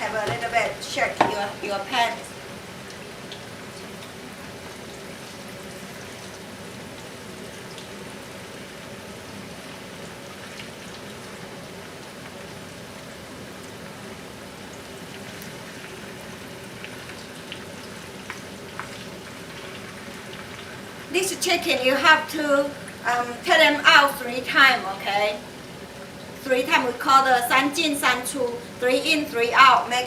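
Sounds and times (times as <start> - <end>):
chicken deep-frying in hot oil: 0.0 - 30.0.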